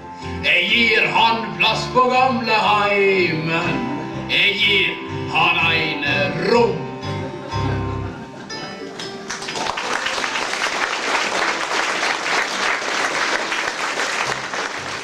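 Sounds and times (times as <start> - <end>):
band playing: 0.0 - 15.0
audience applause: 9.0 - 15.0.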